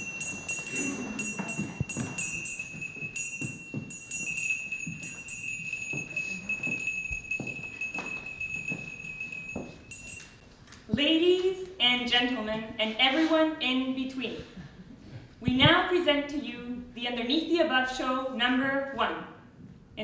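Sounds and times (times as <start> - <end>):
jingling bells: 0.0 - 10.4
steady high ringing tone: 0.0 - 10.4.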